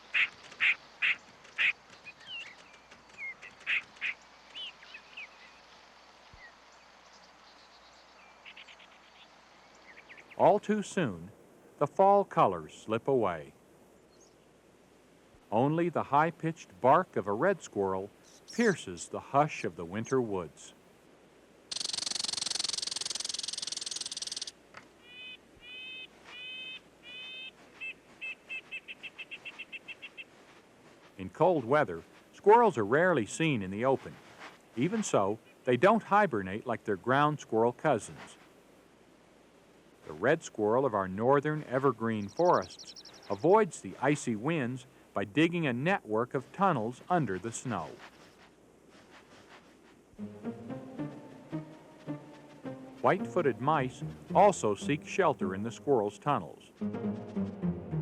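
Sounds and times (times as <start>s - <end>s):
squirrel barking: 0.0s - 2.6s, 3.3s - 4.8s, 21.7s - 30.3s
soft squirrel chirping: 21.7s - 30.4s, 42.3s - 43.4s.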